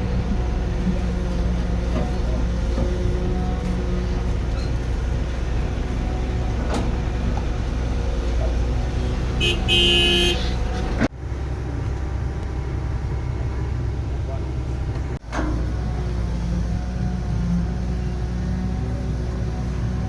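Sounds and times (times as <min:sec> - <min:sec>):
diesel engine running: 0:00.0 - 0:20.0
vehicle horn: 0:09.4 - 0:10.8.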